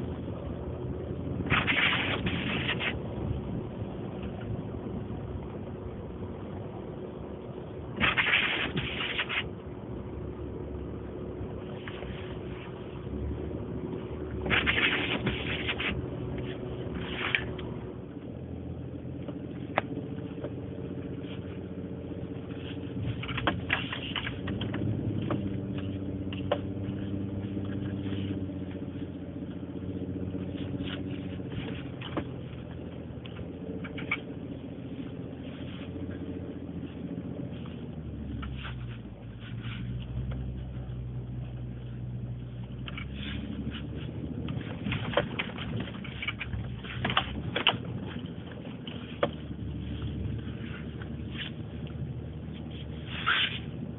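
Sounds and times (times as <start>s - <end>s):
truck engine running: 0.0s - 53.9s
scraping hiss of snow: 1.5s - 3.0s, 8.0s - 9.5s, 14.5s - 17.5s, 35.1s - 40.2s, 52.5s - 53.9s.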